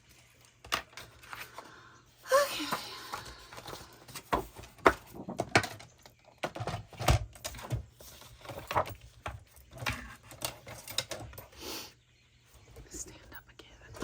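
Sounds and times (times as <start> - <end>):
paper and craft tools handled: 0.0 - 1.8, 2.6 - 11.6.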